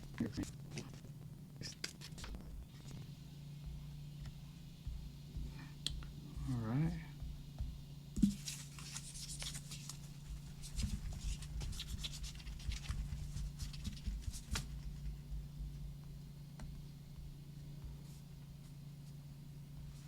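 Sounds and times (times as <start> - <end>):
steady low hum: 0.0 - 20.0
hands rubbing a phone: 8.2 - 15.5.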